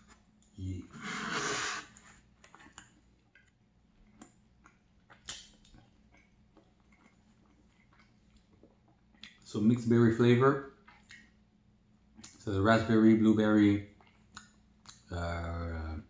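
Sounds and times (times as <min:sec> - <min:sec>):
close-miked chewing: 0:01.8 - 0:09.5, 0:10.7 - 0:11.4, 0:13.8 - 0:15.2
wet clicks and mouth smacks: 0:02.4 - 0:09.4, 0:10.8 - 0:11.4, 0:12.2 - 0:12.4, 0:14.0 - 0:15.1.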